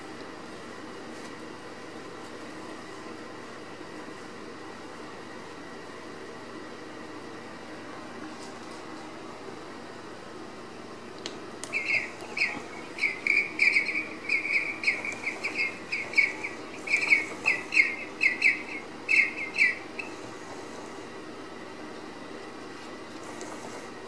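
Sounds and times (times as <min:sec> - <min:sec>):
bird chirping: 0:11.7 - 0:20.2.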